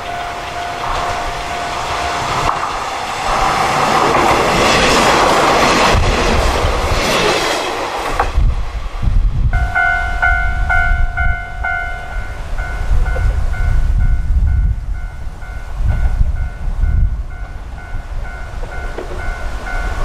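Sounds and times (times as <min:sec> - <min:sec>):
wheels clicking over rail joints: 0:00.0 - 0:08.4, 0:17.3 - 0:20.0.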